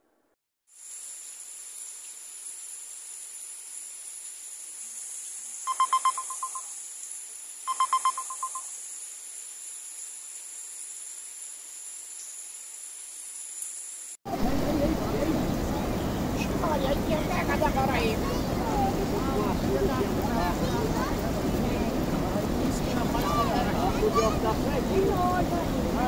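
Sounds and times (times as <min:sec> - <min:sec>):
heavy rain hissing: 0:00.7 - 0:26.0
pulsing beep trills: 0:05.7 - 0:06.7, 0:07.7 - 0:08.7.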